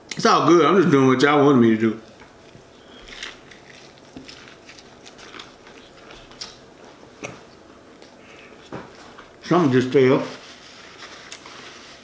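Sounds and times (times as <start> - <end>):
person chewing: 2.9 - 8.7.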